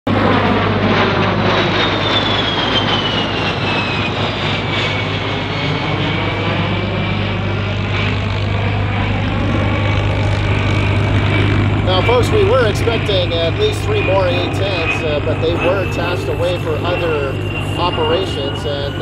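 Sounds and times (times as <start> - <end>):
jet passing by: 0.1 - 19.0
steady low hum: 4.6 - 19.0.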